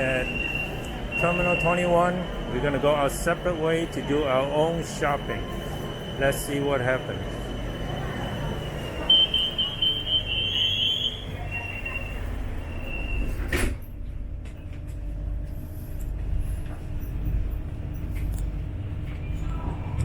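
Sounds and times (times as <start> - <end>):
high electronic warning tone: 0.0 - 13.4
train rumble and hum: 0.0 - 20.0.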